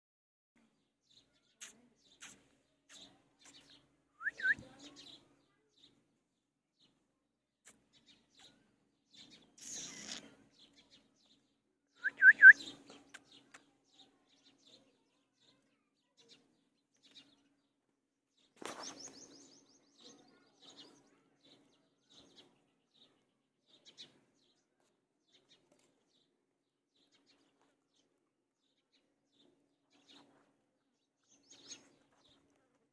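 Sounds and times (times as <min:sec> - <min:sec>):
bird chirps: 0:01.1 - 0:06.0, 0:07.6 - 0:17.5, 0:18.5 - 0:25.9, 0:31.2 - 0:32.5.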